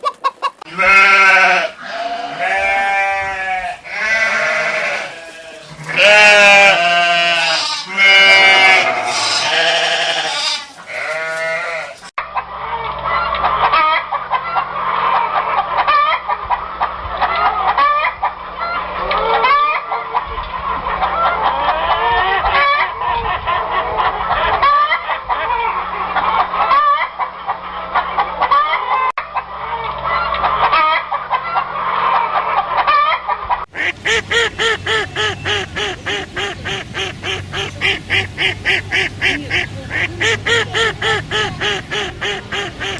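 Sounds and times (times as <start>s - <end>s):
ducks quacking: 0.0s - 42.9s
poultry clucking and honking: 0.0s - 42.9s
bleating: 0.7s - 12.0s.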